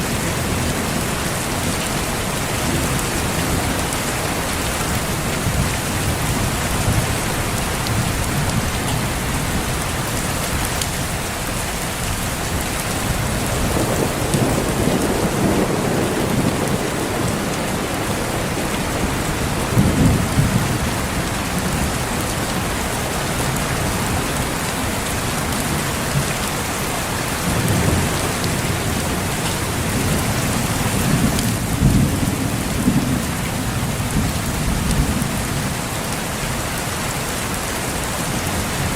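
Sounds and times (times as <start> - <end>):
heavy rain on foliage: 0.0 - 38.9
distant thunder rumbling: 13.0 - 22.4, 25.4 - 35.5.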